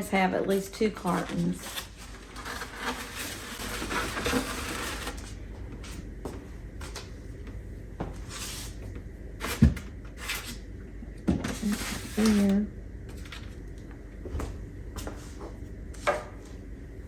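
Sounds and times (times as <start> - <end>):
packaging rustling: 1.2 - 5.4.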